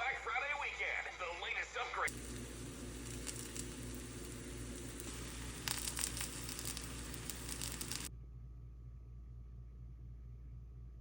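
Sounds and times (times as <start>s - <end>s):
faint low hum: 0.0s - 11.0s
steady background hiss: 0.7s - 8.1s
rustling crackling noise: 2.1s - 8.1s.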